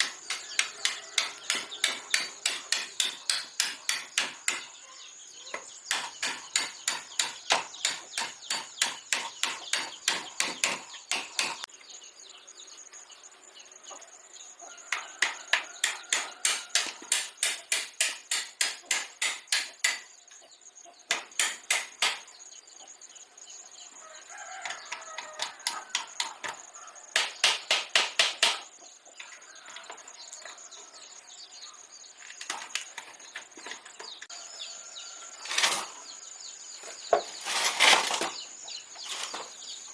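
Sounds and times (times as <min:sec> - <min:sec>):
rapid hammering: 0:00.0 - 0:04.7, 0:05.9 - 0:11.7, 0:14.9 - 0:20.1, 0:21.1 - 0:22.3, 0:27.2 - 0:28.7.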